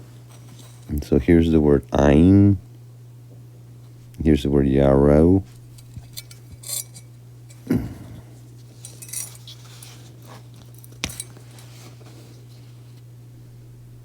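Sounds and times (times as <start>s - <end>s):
steady low hum: 0.0s - 14.0s
light clinks and knocks: 5.6s - 7.7s, 8.7s - 11.8s.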